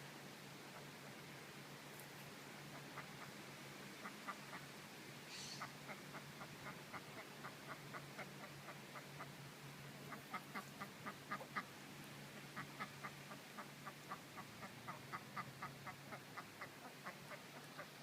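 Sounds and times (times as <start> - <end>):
duck quacking softly: 2.6 - 3.4, 4.0 - 11.7, 12.3 - 18.0.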